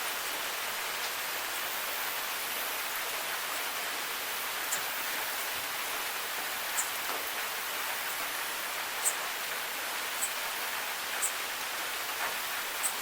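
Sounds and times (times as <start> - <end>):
steady rain hissing: 0.0 - 13.0
raindrop ticks: 4.6 - 5.3, 5.9 - 8.3, 8.9 - 11.4, 12.1 - 13.0.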